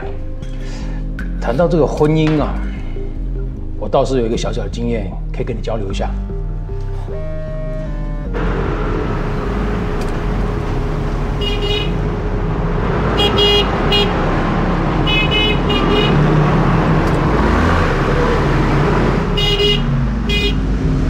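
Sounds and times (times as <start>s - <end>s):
street traffic noise: 6.3s - 21.0s
car horn beeps: 11.3s - 12.0s, 13.2s - 14.2s, 15.0s - 16.4s, 19.3s - 20.6s.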